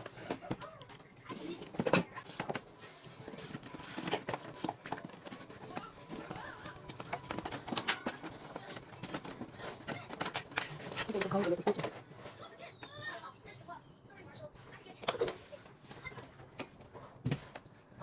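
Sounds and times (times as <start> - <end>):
plastic parts clicking and knocking: 0.0 - 2.7, 3.3 - 12.1
faint voices: 0.0 - 18.0.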